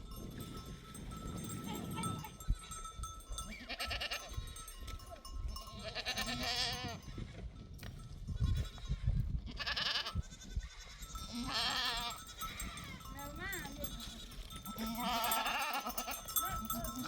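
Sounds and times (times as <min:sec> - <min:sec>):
goats bleating: 0:03.6 - 0:04.6, 0:05.7 - 0:07.1, 0:09.5 - 0:17.0.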